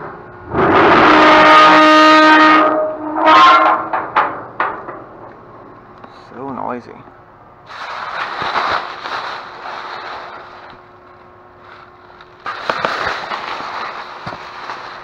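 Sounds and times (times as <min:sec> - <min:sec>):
dumpster scraping and rattling: 0:07.7 - 0:10.8, 0:11.6 - 0:15.0.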